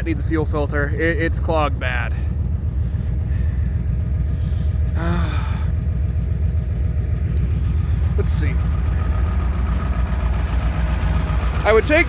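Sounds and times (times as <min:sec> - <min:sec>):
diesel truck engine idling: 0:00.0 - 0:12.0
person vocal sound: 0:05.0 - 0:05.7.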